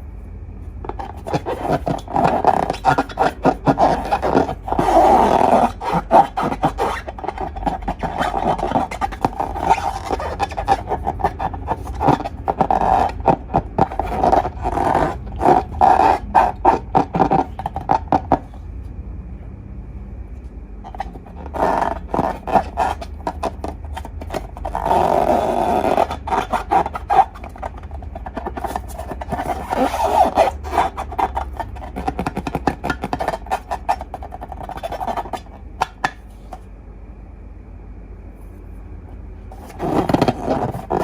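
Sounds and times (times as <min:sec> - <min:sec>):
slime squelching and crackling: 0:00.9 - 0:18.4.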